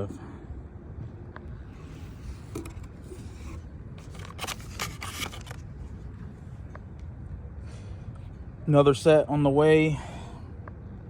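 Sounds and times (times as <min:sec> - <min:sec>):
low steady hum: 0:00.0 - 0:11.0
handling clicks and scrapes: 0:01.7 - 0:06.0.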